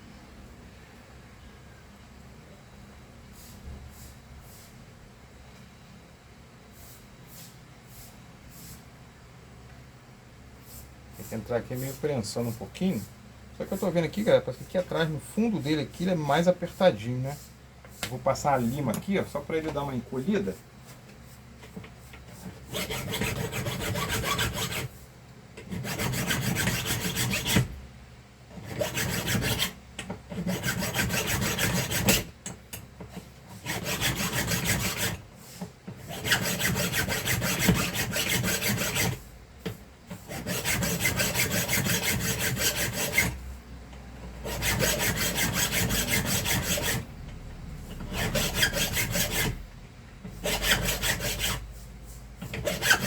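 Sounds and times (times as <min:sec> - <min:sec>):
hand file rasping: 0:22.4 - 0:24.9, 0:25.6 - 0:27.7, 0:28.6 - 0:32.3, 0:33.5 - 0:35.2, 0:36.0 - 0:39.2, 0:40.1 - 0:43.4, 0:44.4 - 0:47.1, 0:47.9 - 0:49.6, 0:50.3 - 0:51.7, 0:52.4 - 0:53.0.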